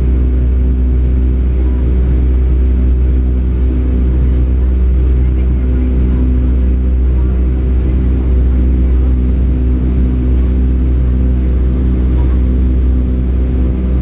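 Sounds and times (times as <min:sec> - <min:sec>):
jet engines droning in cabin: 0:00.0 - 0:14.0.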